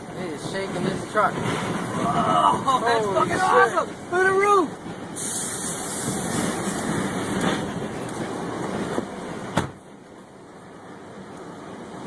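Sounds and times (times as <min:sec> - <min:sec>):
wind buffeting vehicle: 0:00.0 - 0:12.0.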